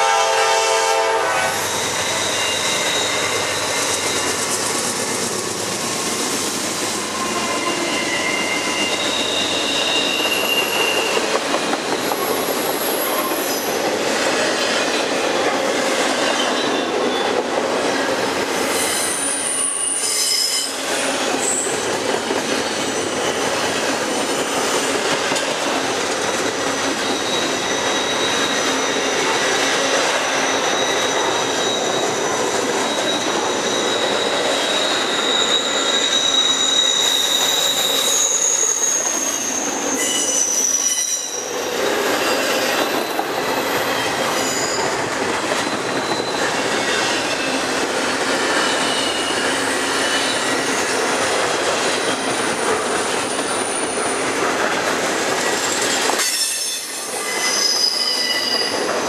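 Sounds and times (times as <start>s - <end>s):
train wheels rumbling on rail: 0.0s - 59.0s
high-pitched wheel squeal: 1.5s - 6.1s, 7.0s - 11.4s, 18.6s - 21.8s, 26.6s - 45.0s, 45.9s - 47.7s, 48.4s - 50.9s, 55.5s - 58.9s.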